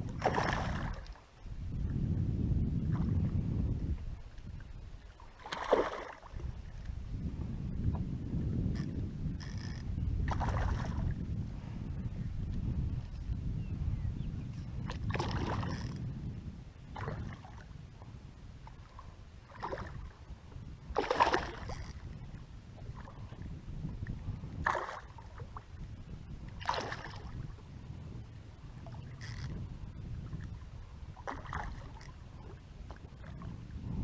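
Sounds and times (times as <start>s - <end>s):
water splashing around boat: 0.0s - 1.5s, 2.9s - 7.0s, 8.6s - 11.2s, 14.8s - 16.0s, 16.9s - 17.8s, 18.6s - 20.3s, 20.9s - 22.2s, 22.8s - 25.8s, 26.5s - 27.6s, 28.8s - 33.8s
steady low rumble: 0.0s - 5.1s, 6.4s - 20.9s.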